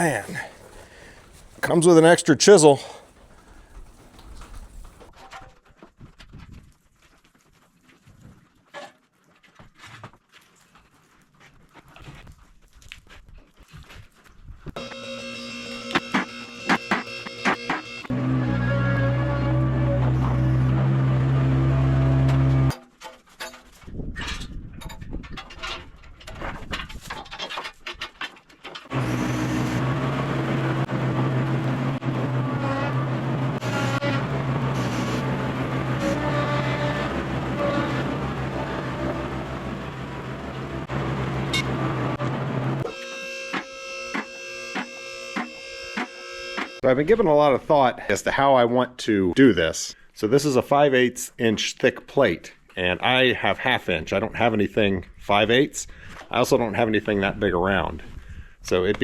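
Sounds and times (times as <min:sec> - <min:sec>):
engine running with low hum: 0:17.9 - 0:22.7, 0:28.9 - 0:42.9.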